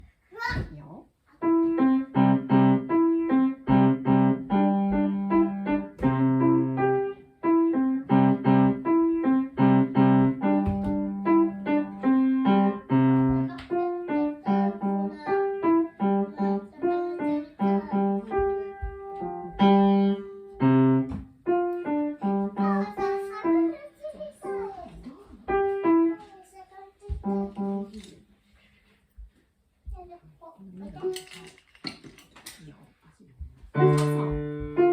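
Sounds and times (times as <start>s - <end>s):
simple piano piece: 1.4s - 26.6s, 33.7s - 34.9s.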